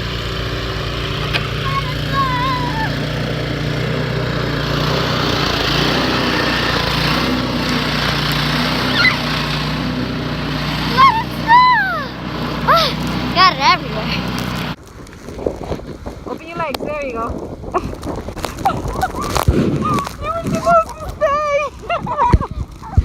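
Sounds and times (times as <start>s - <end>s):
small engine running: 0.0s - 14.8s
children's high calls: 1.5s - 3.1s, 8.8s - 9.4s, 10.8s - 13.5s.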